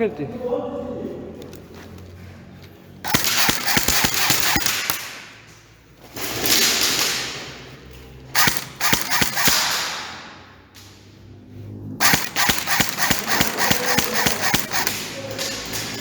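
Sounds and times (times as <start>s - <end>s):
airsoft guns firing: 3.0s - 5.6s, 6.2s - 10.5s, 12.0s - 16.0s.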